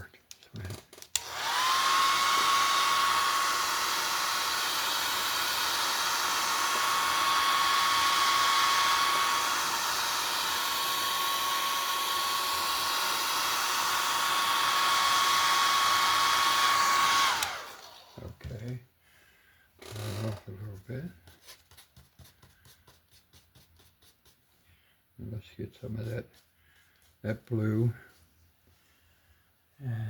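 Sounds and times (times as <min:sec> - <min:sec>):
hair dryer blowing with whine: 0:01.2 - 0:18.7, 0:19.8 - 0:20.5.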